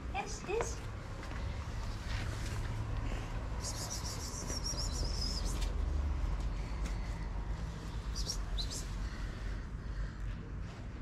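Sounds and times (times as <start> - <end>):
small birds twittering: 8.1 - 9.4.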